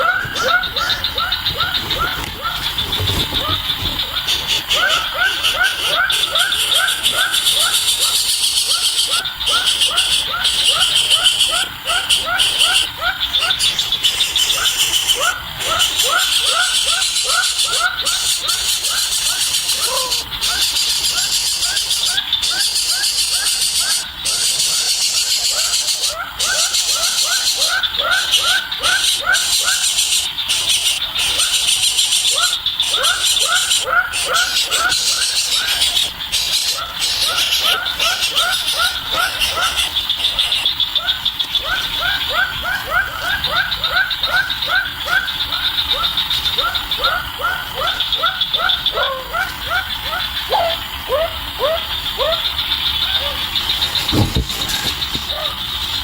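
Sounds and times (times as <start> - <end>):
steady high hiss: 0.0 - 42.6
nestling begging calls: 0.0 - 56.0
pulsing insect-like trill: 0.0 - 56.0.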